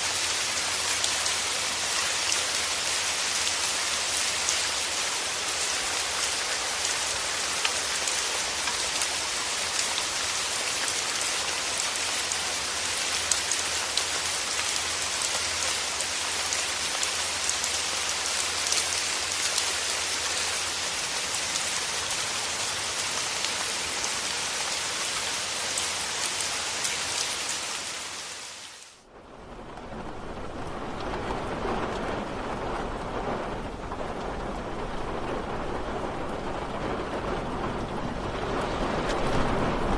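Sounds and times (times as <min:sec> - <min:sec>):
rain falling: 0:00.0 - 0:39.9
raindrop ticks: 0:29.6 - 0:39.9.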